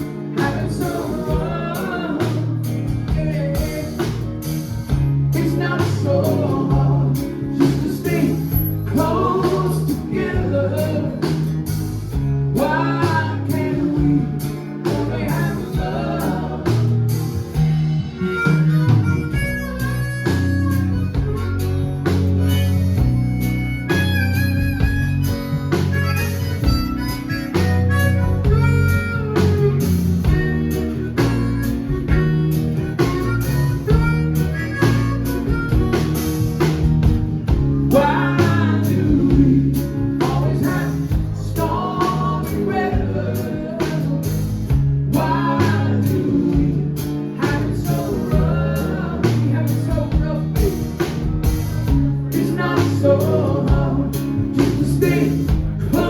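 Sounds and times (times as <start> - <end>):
bass: 0.0 - 56.0
guitar: 0.0 - 56.0
steady drum beat: 0.0 - 56.0
harmonica solo: 17.5 - 37.2.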